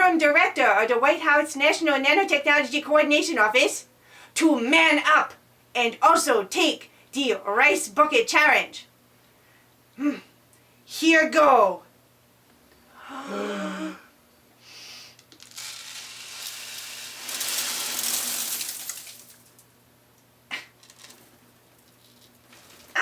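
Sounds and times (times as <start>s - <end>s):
rice grains pouring: 15.4s - 19.6s, 20.8s - 23.0s.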